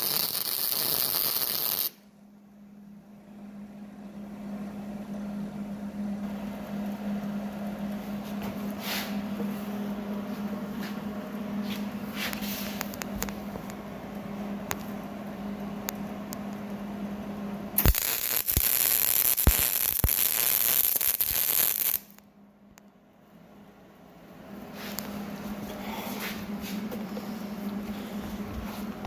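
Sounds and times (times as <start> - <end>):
welding arc crackling: 0.0 - 2.0, 17.8 - 22.2
steady hum: 0.0 - 29.0.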